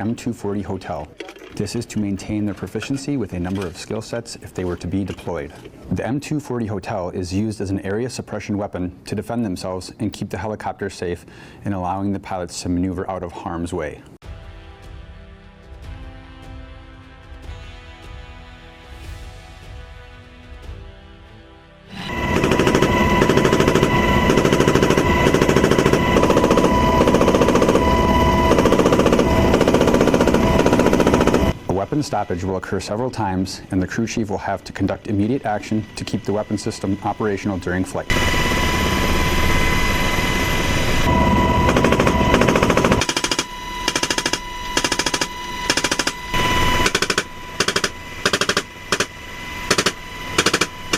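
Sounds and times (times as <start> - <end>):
machine gun firing automatic bursts: 22.2 - 31.6, 41.6 - 49.1, 49.7 - 50.7.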